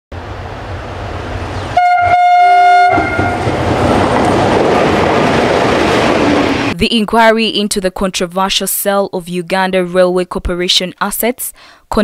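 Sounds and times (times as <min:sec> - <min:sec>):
train rumbling: 0:00.1 - 0:07.3
locomotive horn blasts: 0:01.8 - 0:03.5.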